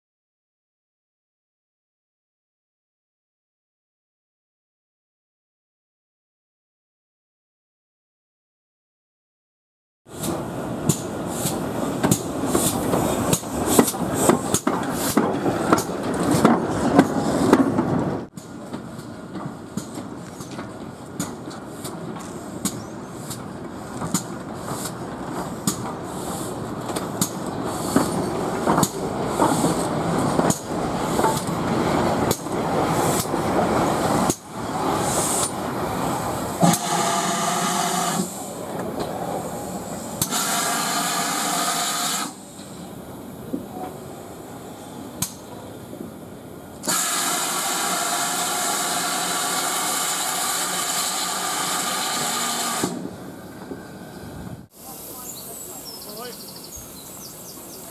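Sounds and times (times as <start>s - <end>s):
steam locomotive venting steam: 10.1s - 57.9s.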